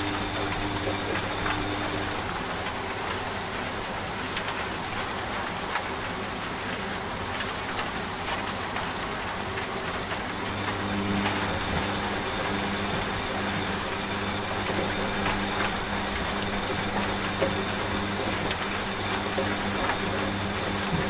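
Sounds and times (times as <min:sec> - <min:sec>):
rain drop ticks: 0:00.0 - 0:21.0
steady rain: 0:00.0 - 0:21.0
washing machine humming: 0:00.0 - 0:21.0.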